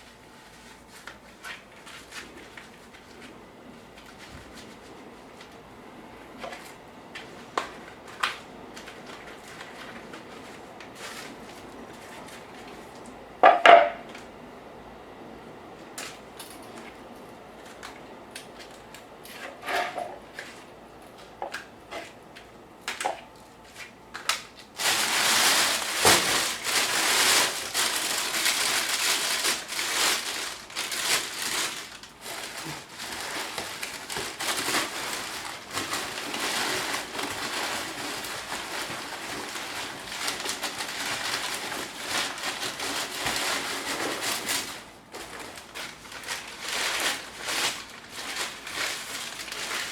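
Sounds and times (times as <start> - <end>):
newspaper crumpling: 6.4 - 12.9, 24.4 - 49.9.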